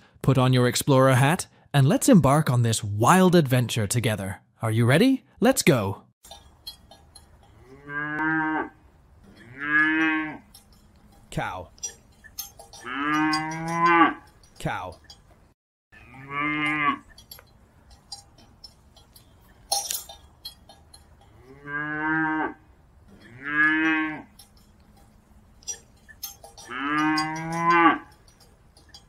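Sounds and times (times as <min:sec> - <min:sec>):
cow mooing: 0:07.5 - 0:10.6, 0:12.7 - 0:14.3, 0:16.0 - 0:17.2, 0:21.2 - 0:24.6, 0:26.5 - 0:28.2
sharp clink: 0:17.1 - 0:21.3.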